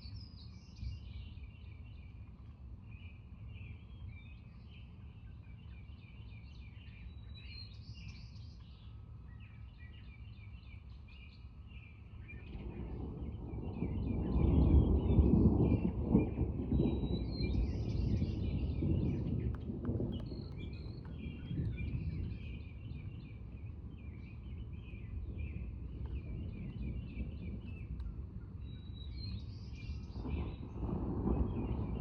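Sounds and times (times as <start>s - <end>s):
songbirds chirping: 0.0s - 32.0s
distant thunder rumble: 12.2s - 32.0s.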